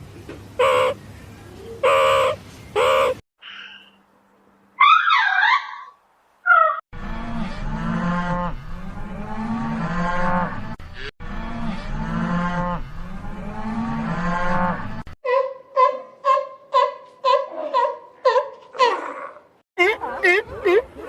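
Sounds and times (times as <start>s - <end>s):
cow mooing: 7.0s - 15.0s.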